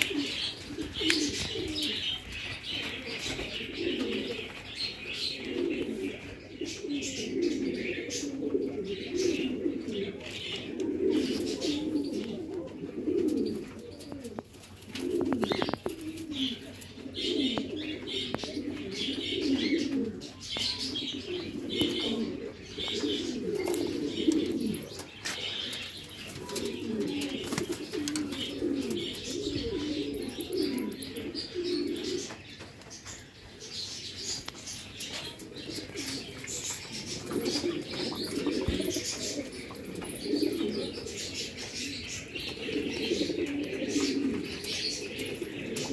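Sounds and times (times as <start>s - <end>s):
pigeons cooing: 0.0s - 45.9s.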